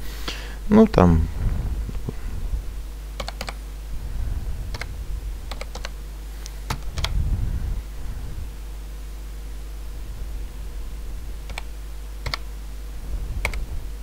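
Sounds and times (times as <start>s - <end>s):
low steady hum: 0.0s - 14.0s
keyboard keystrokes clicking: 3.2s - 3.6s, 4.7s - 4.9s, 5.5s - 6.0s, 6.7s - 7.2s, 11.4s - 12.5s, 13.4s - 13.6s.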